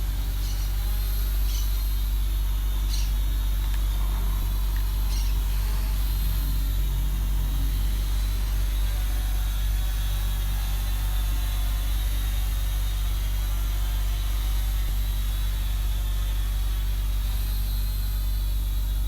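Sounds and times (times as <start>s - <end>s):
road traffic rumble: 0.0s - 10.5s.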